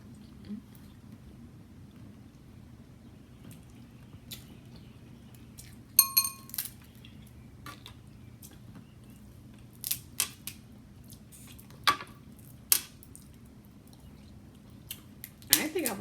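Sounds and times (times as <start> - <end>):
short ringing clink: 6.0 - 6.6.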